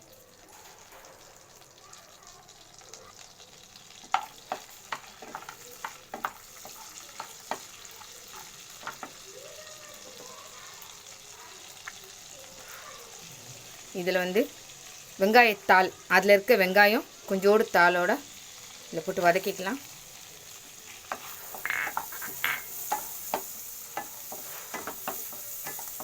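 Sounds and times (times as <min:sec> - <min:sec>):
spices sizzling in butter: 0:00.0 - 0:26.0
spoon scraping a pan: 0:03.8 - 0:09.2, 0:18.2 - 0:26.0.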